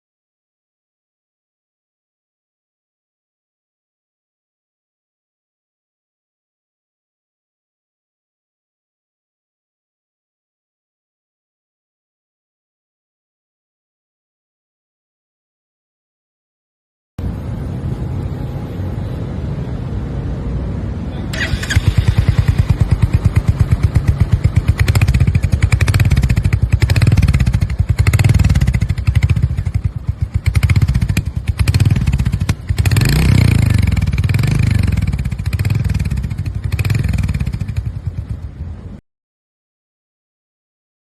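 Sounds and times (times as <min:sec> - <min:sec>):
motorcycle engine idling and revving: 0:21.3 - 0:39.0.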